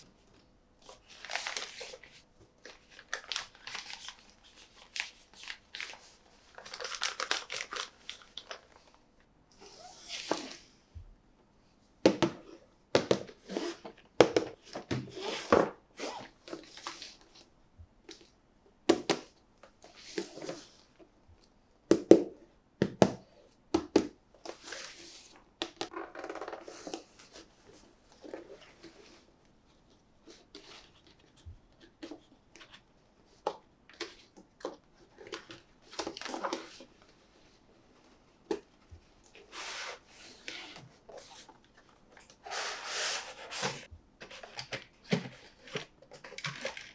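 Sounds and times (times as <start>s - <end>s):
packaging rustling: 0.9s - 8.8s, 38.5s - 46.9s.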